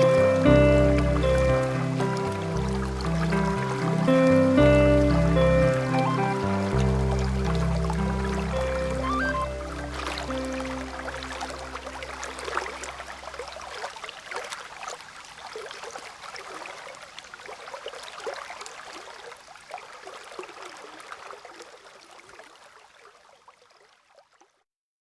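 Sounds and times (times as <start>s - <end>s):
soft background music: 0.0s - 13.3s
stream trickling and gurgling: 0.0s - 24.7s.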